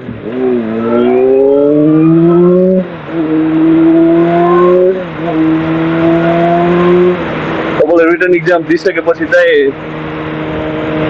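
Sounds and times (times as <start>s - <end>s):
motorcycle engine accelerating: 0.0s - 7.8s.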